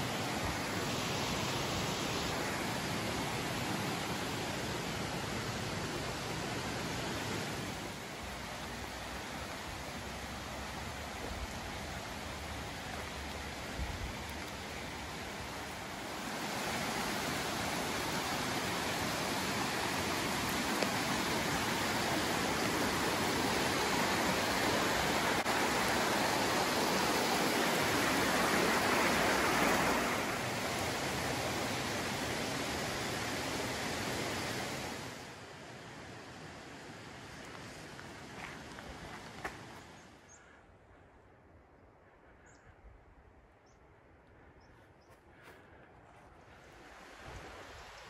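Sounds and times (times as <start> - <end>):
waterfall rushing: 14.4 - 35.3.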